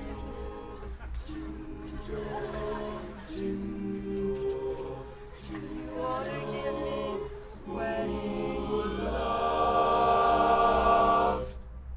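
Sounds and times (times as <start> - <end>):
male a cappella group singing chords: 0.0 - 11.6.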